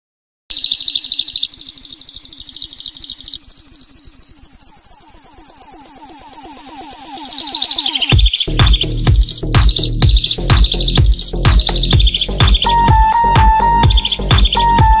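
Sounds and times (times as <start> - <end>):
high chirping trill: 0.5 - 15.0
low pulse beating: 5.8 - 15.0.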